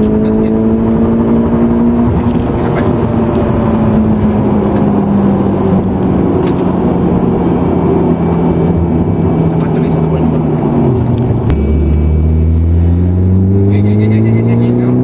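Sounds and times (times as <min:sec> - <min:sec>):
car engine from inside cabin: 0:00.0 - 0:15.0
road and tyre noise: 0:00.0 - 0:15.0.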